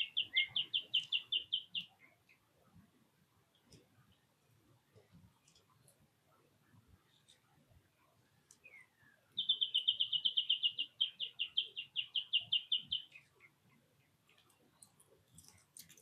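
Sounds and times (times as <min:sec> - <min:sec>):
songbird trilling: 0:00.0 - 0:02.0, 0:08.7 - 0:13.3.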